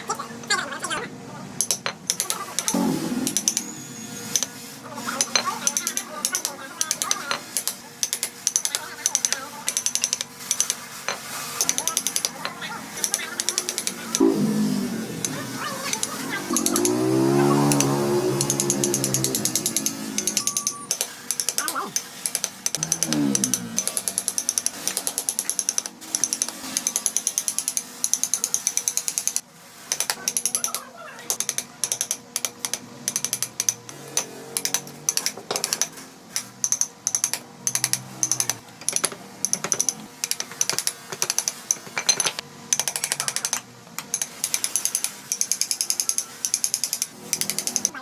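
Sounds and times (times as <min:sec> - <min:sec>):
rapid mechanical clicking: 0:15.0 - 0:48.0.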